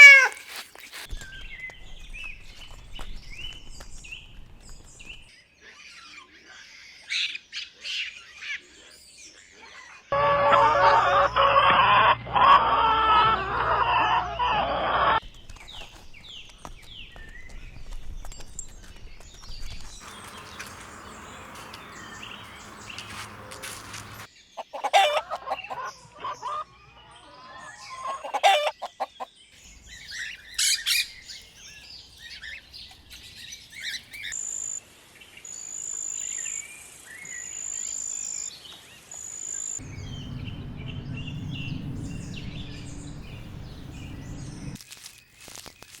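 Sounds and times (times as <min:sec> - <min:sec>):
chickens clucking: 0:00.0 - 0:01.1, 0:10.2 - 0:15.2, 0:20.0 - 0:29.2
birds chirping: 0:00.0 - 0:05.3, 0:10.1 - 0:34.4, 0:39.4 - 0:44.8.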